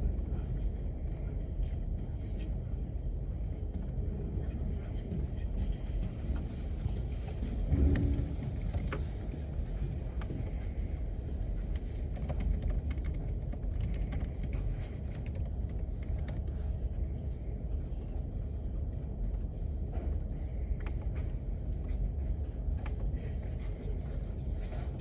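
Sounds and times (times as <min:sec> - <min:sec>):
room ventilation hum: 0:00.0 - 0:25.0
keyboard typing: 0:11.0 - 0:16.9.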